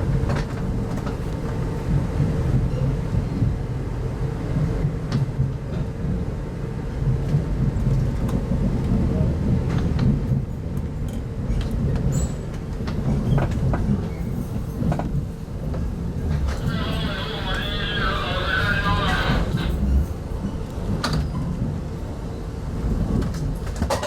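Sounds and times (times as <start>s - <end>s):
train running gear rumble: 0.0s - 24.0s.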